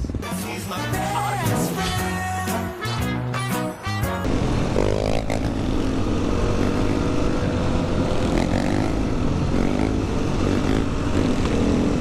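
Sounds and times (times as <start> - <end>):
motorcycle engines running: 0.0 - 12.0
riding noise: 3.5 - 12.0.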